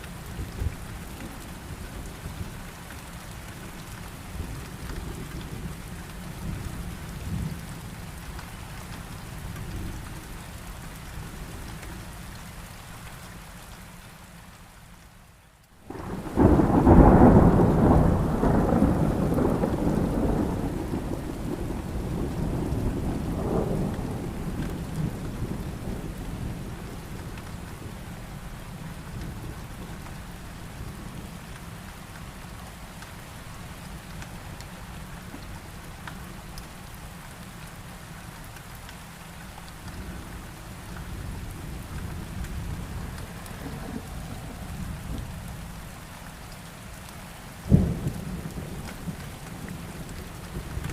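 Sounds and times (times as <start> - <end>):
heavy rain falling: 0.0 - 50.9
thunder rumble: 15.9 - 28.0, 41.0 - 45.9.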